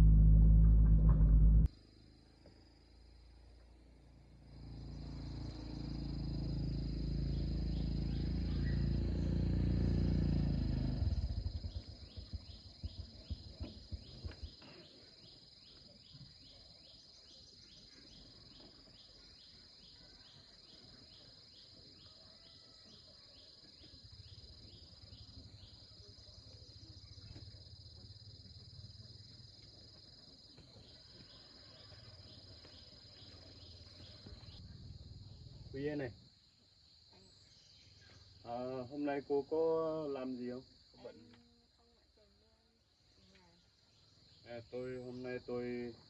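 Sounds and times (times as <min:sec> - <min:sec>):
loud low rumble: 0:00.0 - 0:01.7
crickets chirping: 0:01.7 - 0:46.0.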